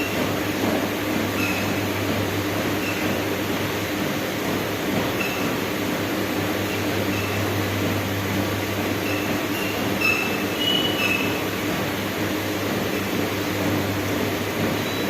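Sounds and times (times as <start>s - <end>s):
treadmill motor and belt: 0.0s - 15.0s
short high squeaks: 9.0s - 11.4s.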